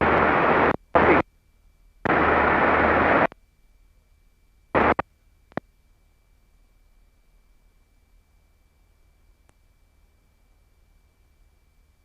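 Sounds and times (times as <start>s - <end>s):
radio static bursts: 0.0s - 1.2s, 2.0s - 3.4s, 4.8s - 5.0s.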